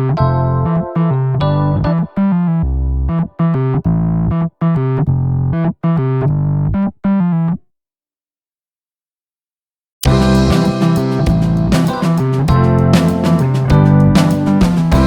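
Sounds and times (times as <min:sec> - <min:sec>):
electric piano chords: 0:00.0 - 0:02.9, 0:10.0 - 0:15.0.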